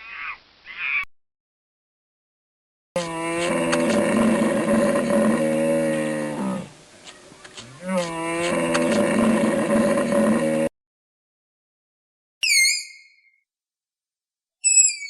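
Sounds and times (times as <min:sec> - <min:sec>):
cow mooing: 0:03.0 - 0:06.7, 0:07.6 - 0:10.7.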